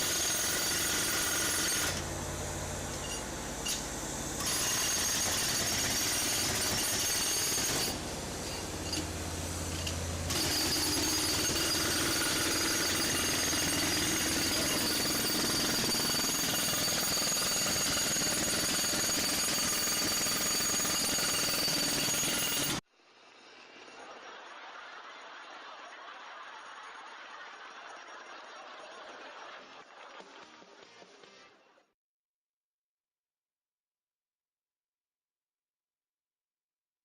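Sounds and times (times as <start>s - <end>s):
jackhammer hammering: 0.0s - 2.1s, 4.4s - 22.8s.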